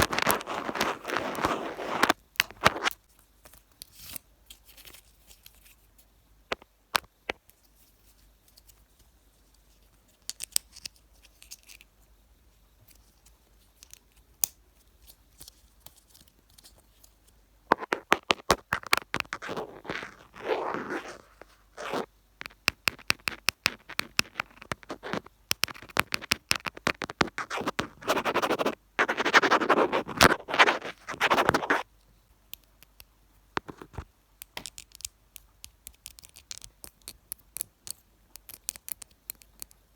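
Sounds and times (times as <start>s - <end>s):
scratching and rubbing on microphone: 0.0s - 3.0s, 17.7s - 31.8s.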